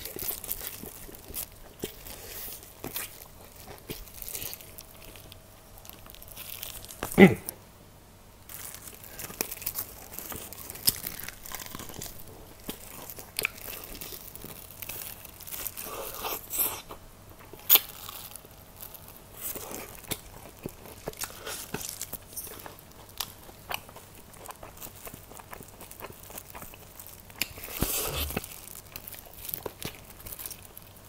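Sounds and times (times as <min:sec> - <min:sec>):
crunching and chewing fried chicken: 0:00.0 - 0:07.2, 0:08.5 - 0:31.0.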